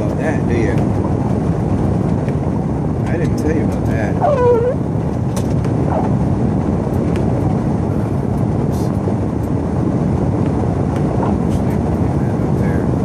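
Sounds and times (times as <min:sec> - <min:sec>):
truck engine and tyres rumbling: 0:00.0 - 0:13.0.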